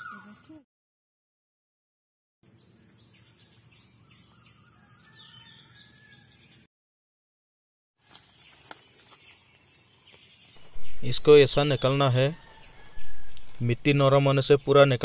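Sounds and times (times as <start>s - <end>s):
bird chirps: 2.5s - 6.7s, 8.3s - 15.0s
steady high hiss: 10.6s - 15.0s.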